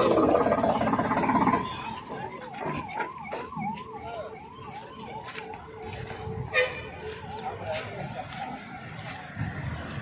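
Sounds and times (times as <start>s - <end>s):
electronic siren warble: 0.0s - 6.2s
loud mix of noise: 0.0s - 10.0s.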